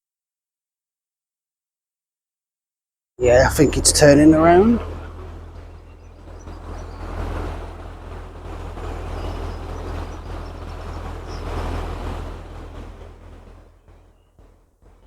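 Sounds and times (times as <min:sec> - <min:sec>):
boat diesel engine running: 0:03.2 - 0:15.0
wind on microphone: 0:03.2 - 0:15.0.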